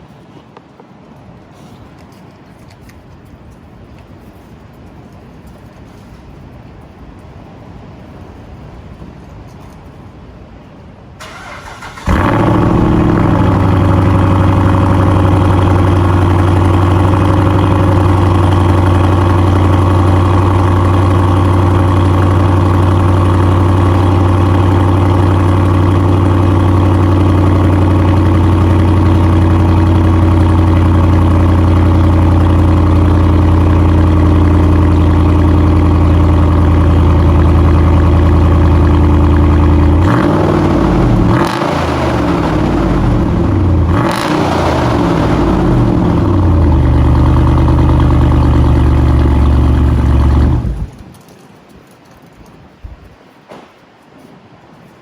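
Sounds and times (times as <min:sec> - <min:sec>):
car engine idling deep and loud: 0:11.3 - 0:51.0.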